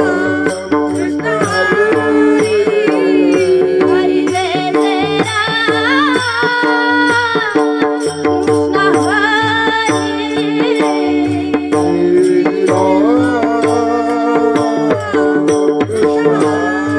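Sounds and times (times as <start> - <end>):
person singing long gliding notes: 0.0 - 5.2, 10.5 - 16.9
hand drum beats: 0.0 - 16.9.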